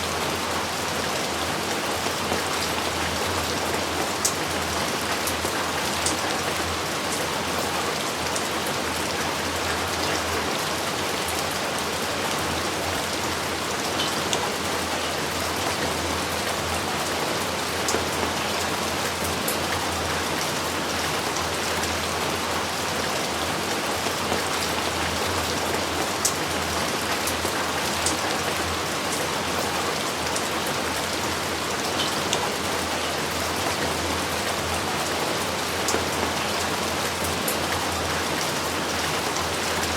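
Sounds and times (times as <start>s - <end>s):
heavy rain falling: 0.0s - 39.9s
rain drop ticks: 2.0s - 6.4s, 24.0s - 29.2s.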